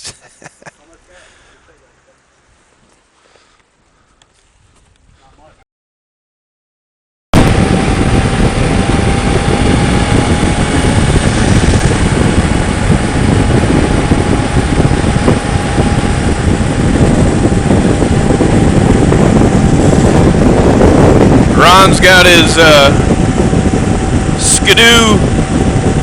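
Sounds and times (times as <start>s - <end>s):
road noise: 0.7s - 5.0s, 7.4s - 26.0s
motorcycle engine: 7.4s - 26.0s
wind rush over microphone: 7.4s - 26.0s.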